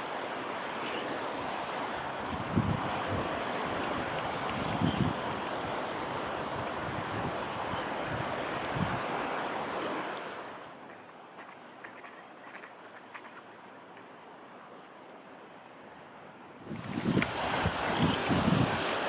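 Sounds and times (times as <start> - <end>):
gusty wind buffeting microphone: 1.4 - 9.4, 16.6 - 19.0.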